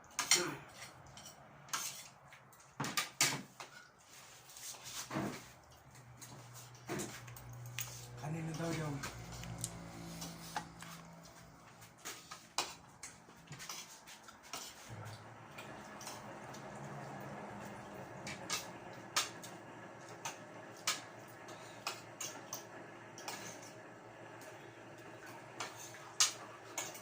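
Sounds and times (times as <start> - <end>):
cutlery clinking on plates: 25.6 - 27.0.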